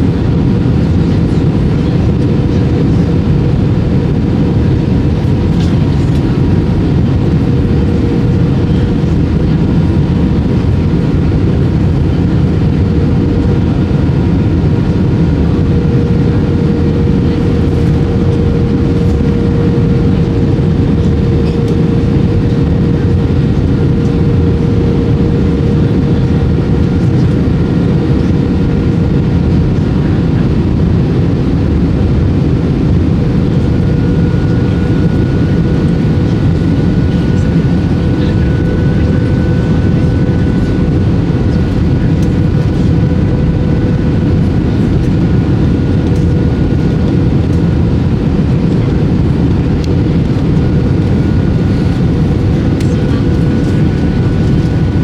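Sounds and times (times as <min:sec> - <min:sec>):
aircraft cabin engine rush: 0:00.0 - 0:55.0
steady whine: 0:00.0 - 0:55.0.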